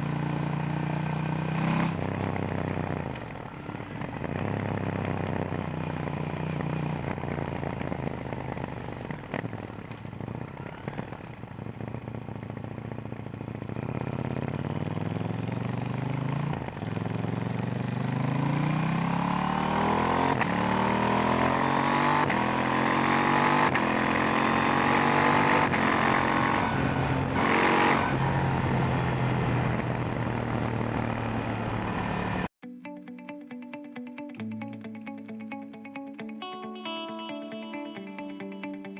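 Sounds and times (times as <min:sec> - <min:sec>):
motorcycle engine accelerating: 0:00.0 - 0:32.6.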